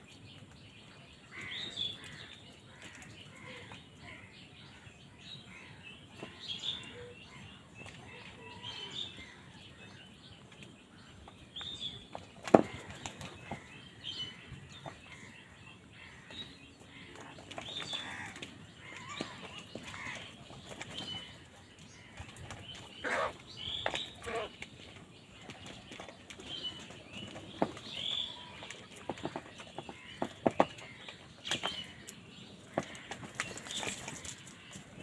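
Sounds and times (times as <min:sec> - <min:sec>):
crows calling: 0:01.2 - 0:04.3, 0:12.4 - 0:24.6, 0:27.6 - 0:35.0.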